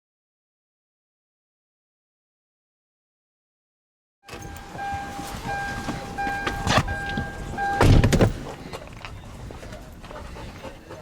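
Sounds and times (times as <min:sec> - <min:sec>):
electronic beeping tone: 0:04.3 - 0:08.0
heavy thunk: 0:07.8 - 0:08.4.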